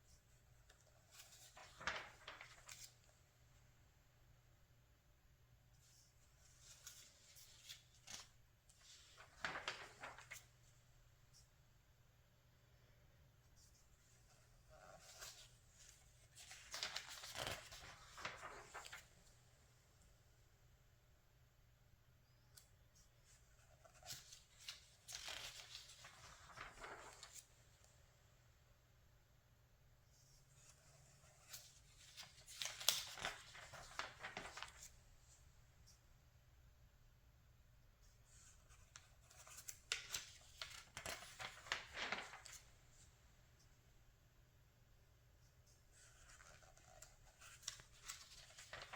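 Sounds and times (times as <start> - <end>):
magazine page turning: 1.0 - 3.1, 6.4 - 10.6, 14.8 - 19.3, 23.6 - 27.6, 30.6 - 35.0, 38.5 - 43.1, 45.9 - 48.9
paper clicks: 7.6 - 10.4, 31.3 - 34.9, 38.6 - 42.7, 46.0 - 48.9.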